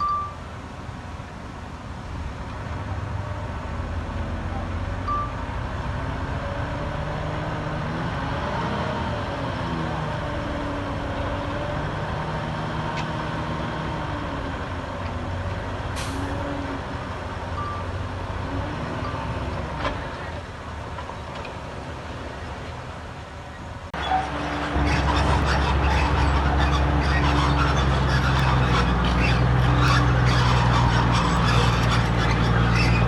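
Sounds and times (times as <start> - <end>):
diesel truck engine revving: 2.1 - 20.8, 23.9 - 33.0
air brake hiss: 16.0 - 16.4.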